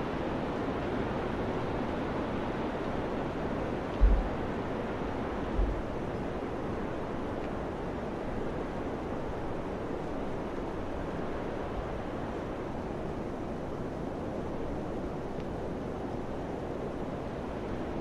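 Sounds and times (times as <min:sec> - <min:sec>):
wind buffeting microphone: 0:03.9 - 0:06.1.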